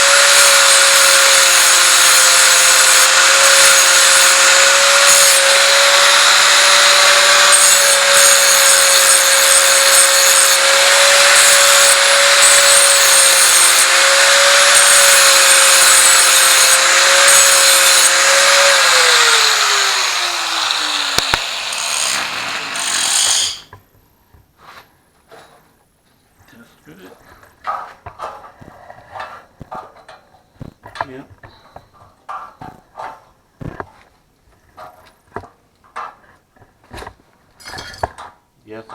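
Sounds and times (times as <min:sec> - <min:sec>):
angle grinder motor whine: 0:00.0 - 0:23.7
grinding on steel: 0:00.0 - 0:23.7.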